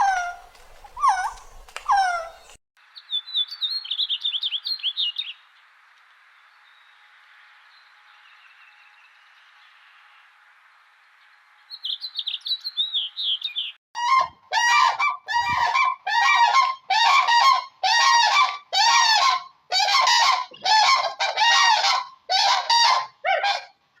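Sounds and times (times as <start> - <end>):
bird harsh calls: 0.0 - 2.6, 11.8 - 23.7
bird high chirps: 11.7 - 14.2.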